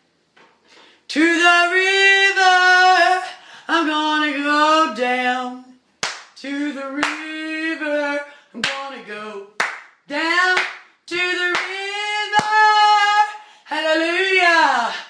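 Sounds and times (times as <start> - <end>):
hand claps: 6.0 - 6.4, 7.0 - 7.3, 9.6 - 10.9, 11.5 - 12.7.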